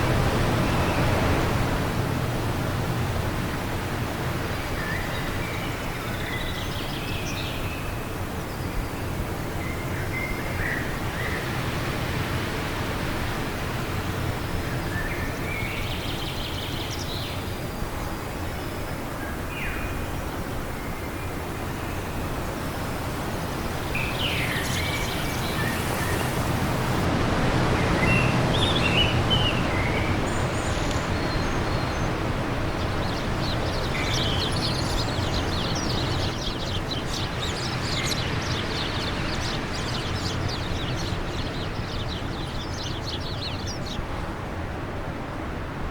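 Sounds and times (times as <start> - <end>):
wind: 0.0 - 45.9
bird chirps and calls: 19.7 - 27.0, 32.8 - 44.0.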